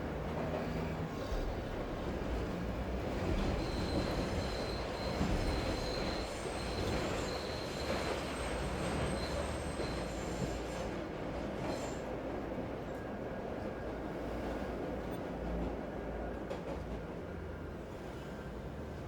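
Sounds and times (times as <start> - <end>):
train low rumble and hiss: 0.0 - 19.0
train wheels squealing: 3.0 - 12.4.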